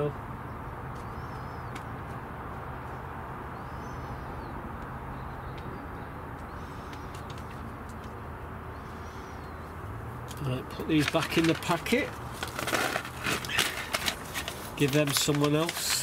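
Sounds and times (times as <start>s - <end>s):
small bird high calls: 8.7s - 9.8s.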